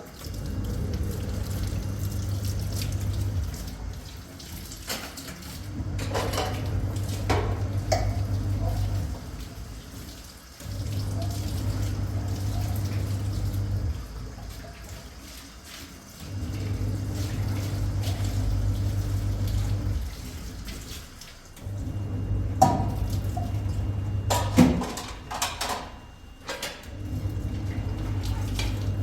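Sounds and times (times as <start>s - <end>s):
water running from a tap: 0.0s - 29.0s
dishes clinking: 6.0s - 8.2s.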